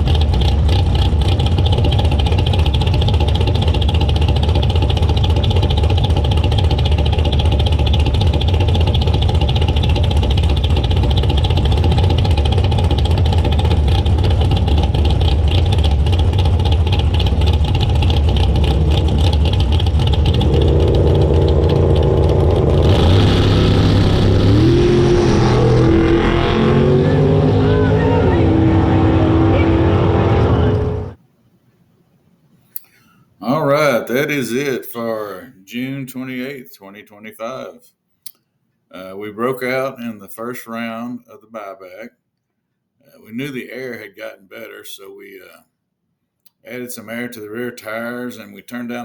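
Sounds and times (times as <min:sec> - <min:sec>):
loud engine idling: 0:00.0 - 0:31.2
second engine revving up: 0:00.0 - 0:31.2.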